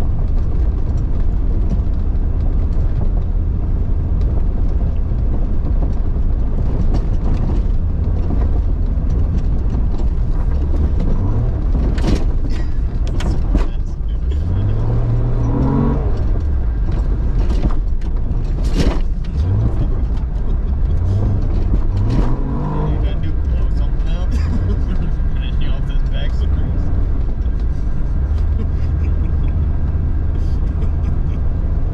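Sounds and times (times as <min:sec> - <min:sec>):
engine revving: 0:07.2 - 0:31.9.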